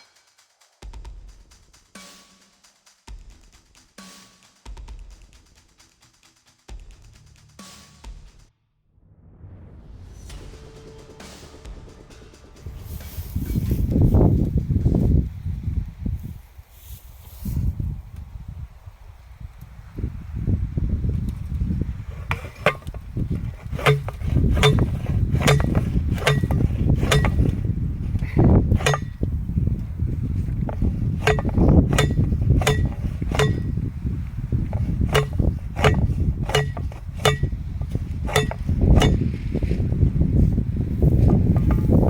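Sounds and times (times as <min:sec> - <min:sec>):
wind buffeting microphone: 0:12.6 - 0:42.0
hammer blows on metal: 0:22.1 - 0:42.0.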